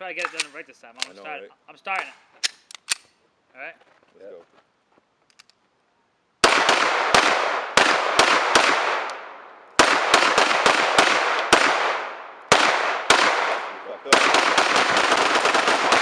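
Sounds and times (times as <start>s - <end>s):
gunshots echoing: 6.4s - 16.0s.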